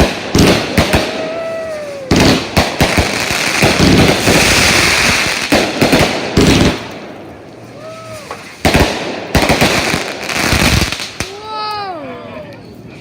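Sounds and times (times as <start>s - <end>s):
fireworks bangs: 0.0s - 11.5s
crackling firework hiss: 0.0s - 11.7s
falling firework whistle: 0.4s - 5.3s, 7.7s - 8.8s.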